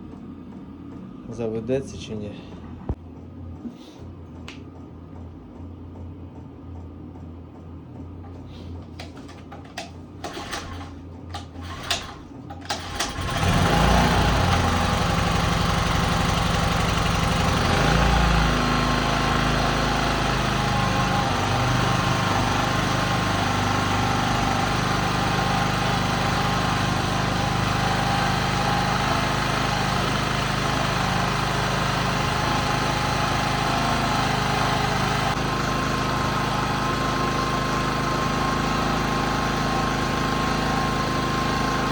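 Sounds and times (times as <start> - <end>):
engine cranking clatter: 8.9 - 38.0
small petrol engine running: 9.8 - 41.9.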